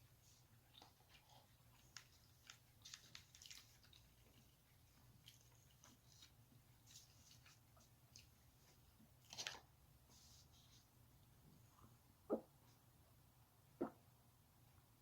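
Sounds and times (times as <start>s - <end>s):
chewing crunchy food: 0.6s - 6.3s.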